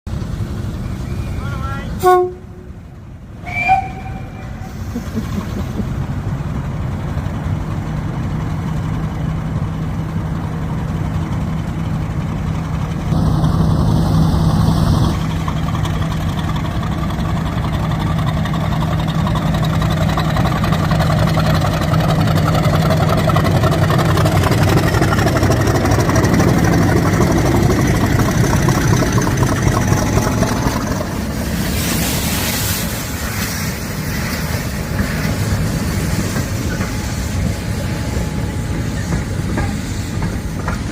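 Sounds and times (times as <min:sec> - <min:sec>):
locomotive engine drone: 0:00.1 - 0:40.9
hiss: 0:30.4 - 0:40.9.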